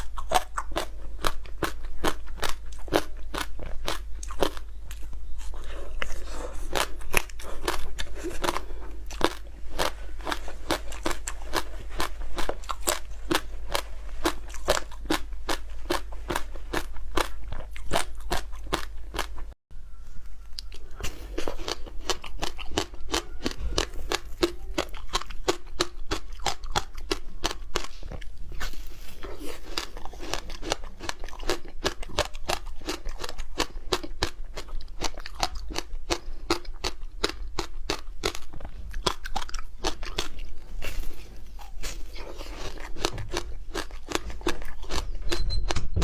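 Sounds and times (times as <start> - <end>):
crunching frozen fruit: 0.0 - 19.5, 20.2 - 45.4.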